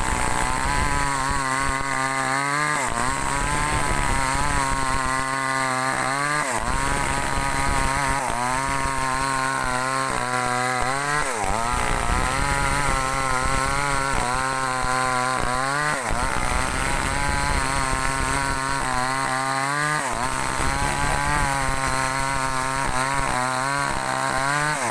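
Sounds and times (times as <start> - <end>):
chainsaw cutting a log: 0.0 - 24.9.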